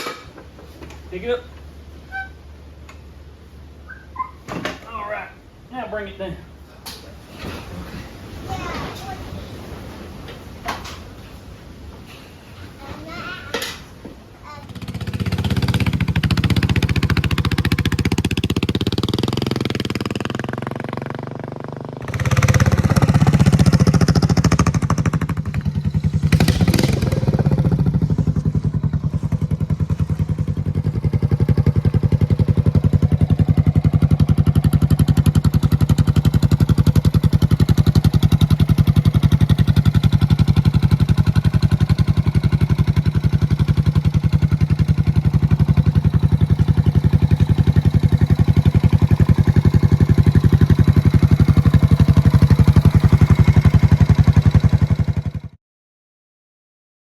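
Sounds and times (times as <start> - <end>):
motorcycle engine revving and idling: 14.6 - 55.6.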